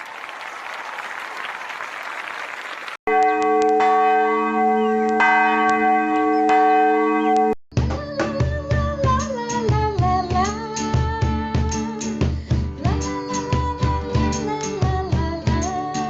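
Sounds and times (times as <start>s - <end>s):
bell ringing: 3.1s - 7.6s.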